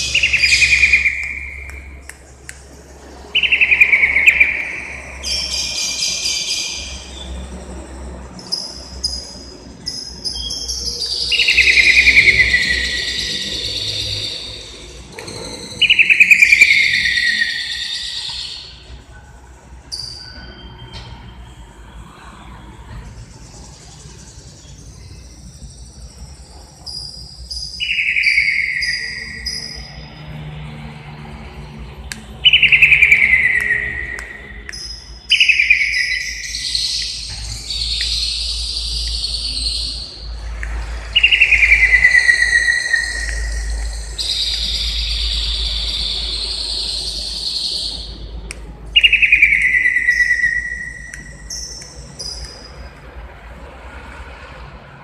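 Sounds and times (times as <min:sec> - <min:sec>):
bird whistling descending notes: 0:00.0 - 0:02.1, 0:03.3 - 0:07.3, 0:09.9 - 0:18.8, 0:26.9 - 0:30.4, 0:32.4 - 0:48.3, 0:49.0 - 0:52.8
bird chirps: 0:00.0 - 0:07.8, 0:08.4 - 0:30.6, 0:32.0 - 0:53.1.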